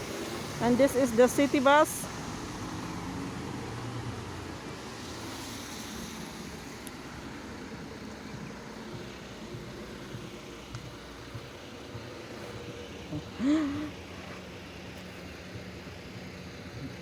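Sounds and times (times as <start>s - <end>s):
vehicle rushing on wet road: 0.0s - 13.1s.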